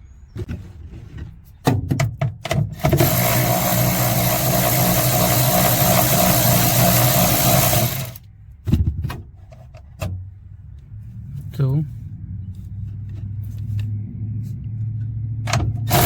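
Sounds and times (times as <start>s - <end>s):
tool and metal clicks: 2.0s - 8.2s
power drill running: 2.8s - 8.2s.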